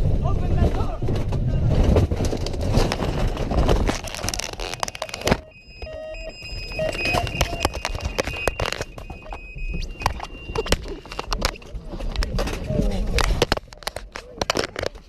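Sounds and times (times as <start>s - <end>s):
aircraft crash scraping and banging: 0.0s - 3.9s
high electronic alarm beeps: 4.9s - 11.7s.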